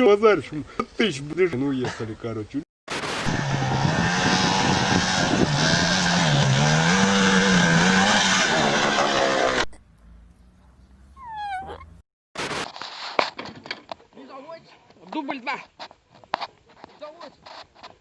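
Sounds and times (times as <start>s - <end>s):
loud vehicle engine running: 3.0s - 9.7s.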